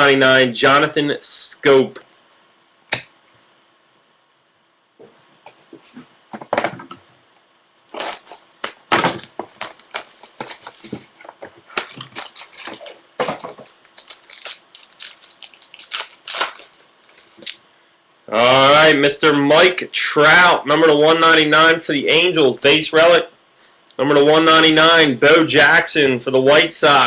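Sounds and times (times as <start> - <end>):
plastic wrapping crinkling and tearing: 7.9 - 17.6.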